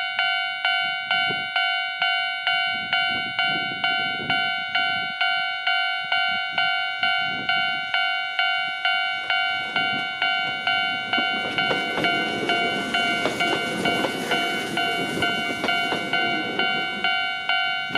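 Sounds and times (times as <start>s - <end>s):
electric train passing: 0.0s - 17.9s
level crossing alarm bell: 0.0s - 17.9s
train wheel clicks: 9.2s - 17.9s.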